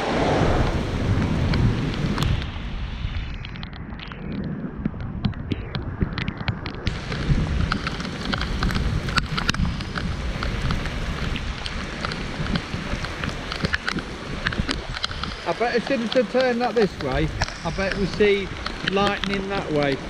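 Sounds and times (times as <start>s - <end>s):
steady low rumble: 0.0s - 20.0s
raindrops ticking on microphone: 0.6s - 20.0s
heavy rain falling: 6.9s - 20.0s.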